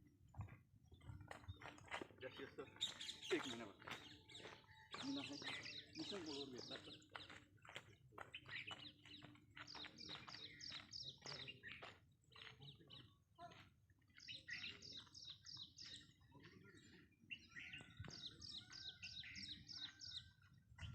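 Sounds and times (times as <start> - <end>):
faint small birds chirping: 0.3 - 20.9.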